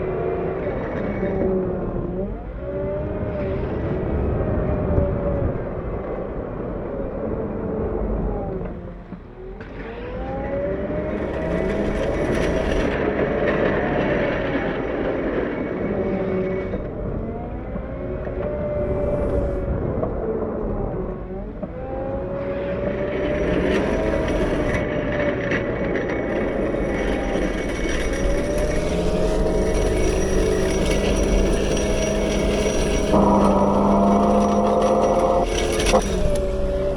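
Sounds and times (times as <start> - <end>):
diesel loader engine revving: 0.0 - 36.9.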